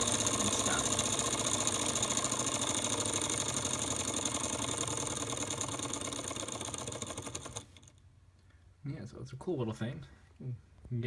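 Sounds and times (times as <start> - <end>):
model engine mechanical clatter: 0.0 - 8.0.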